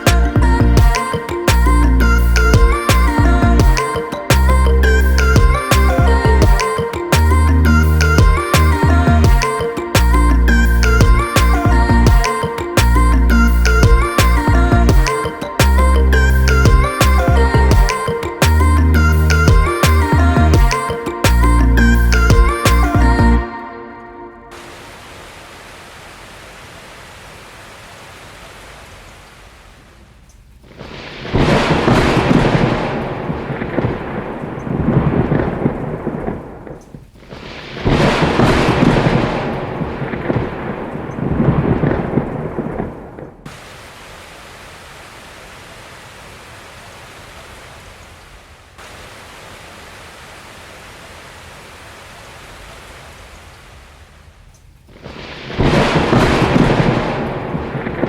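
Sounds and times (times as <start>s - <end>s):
rain hiss: 0.0s - 23.5s, 24.5s - 58.0s
thunder rolling: 30.6s - 43.6s, 54.9s - 58.0s.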